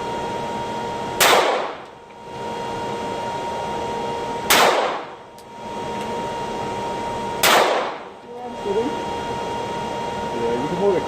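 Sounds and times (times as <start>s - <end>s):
gunshots: 1.2s - 1.8s, 4.5s - 5.1s, 7.4s - 8.0s.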